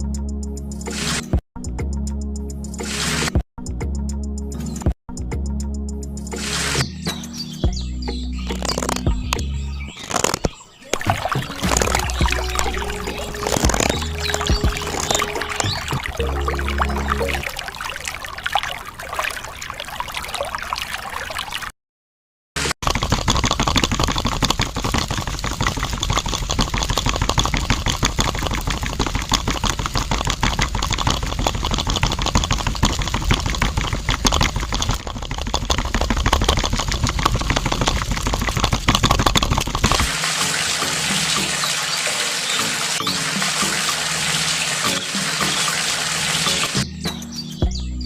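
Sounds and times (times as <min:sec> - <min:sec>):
water pouring and splashing: 0:08.5 - 0:21.8, 0:22.6 - 0:46.9.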